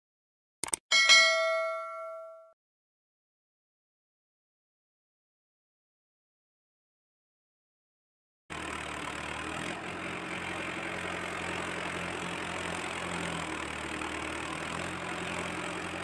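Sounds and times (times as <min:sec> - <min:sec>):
tractor diesel engine idling: 0:08.5 - 0:16.0.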